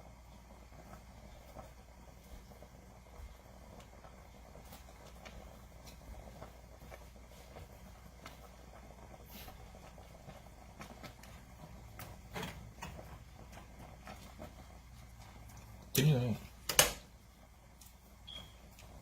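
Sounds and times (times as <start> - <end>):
light kitchen clicks and knocks: 16.6 - 17.1.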